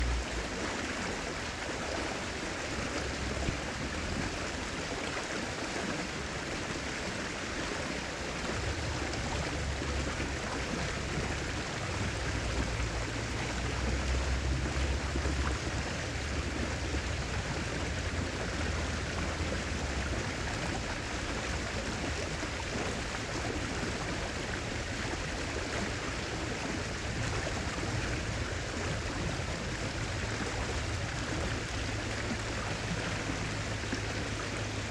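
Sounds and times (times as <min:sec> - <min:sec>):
low rumble: 0:00.0 - 0:01.1
river water rushing: 0:00.0 - 0:34.9.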